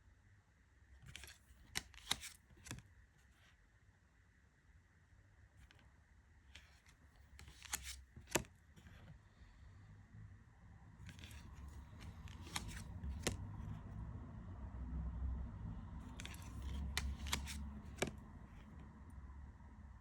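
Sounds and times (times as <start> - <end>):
cards being handled: 1.0 - 3.4, 6.5 - 9.2, 11.0 - 13.9, 16.0 - 18.8
cards snapping: 1.1 - 2.8, 7.4 - 8.5, 11.1 - 13.5, 16.1 - 18.3.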